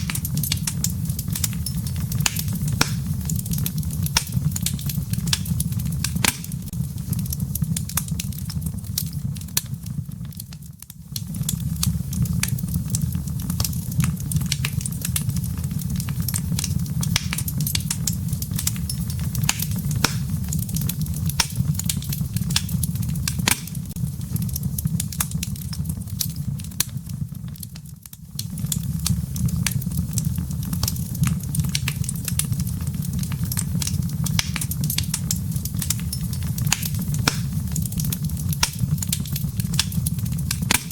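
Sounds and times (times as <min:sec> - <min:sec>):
low rumble of flame: 0:00.0 - 0:40.9
wood fire crackling and popping: 0:00.0 - 0:40.9.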